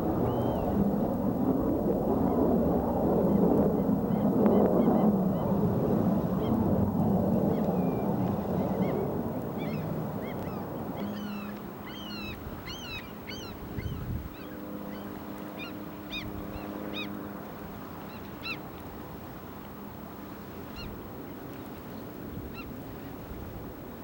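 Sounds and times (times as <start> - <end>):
flock of birds calling: 9.6 - 17.2.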